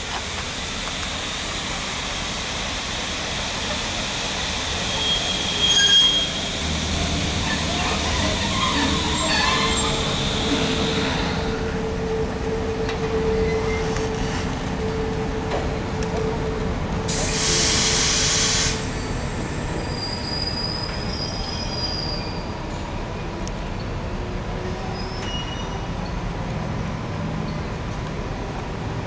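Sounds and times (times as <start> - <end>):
locomotive whine: 0.0 - 29.0
train rumbling past: 0.0 - 29.0
wheel squeals: 4.9 - 11.4, 19.0 - 22.6, 24.9 - 25.9
loud hiss: 17.1 - 19.8.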